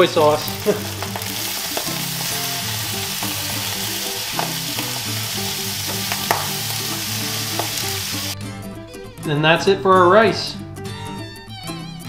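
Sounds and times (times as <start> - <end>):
food sizzling in a wok: 0.0 - 8.4.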